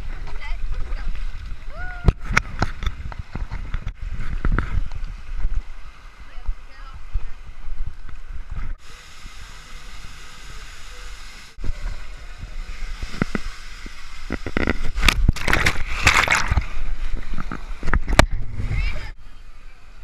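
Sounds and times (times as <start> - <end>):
wind buffeting microphone: 0.0 - 8.8, 14.3 - 19.2
water splashing: 0.0 - 19.2
rushing water: 0.0 - 20.0.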